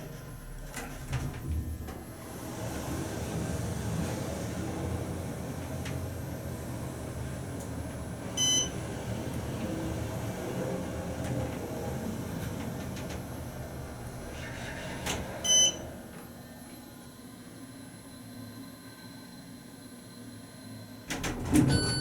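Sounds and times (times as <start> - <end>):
elevator running hum: 0.0 - 22.0
short electronic beeps: 21.7 - 22.0.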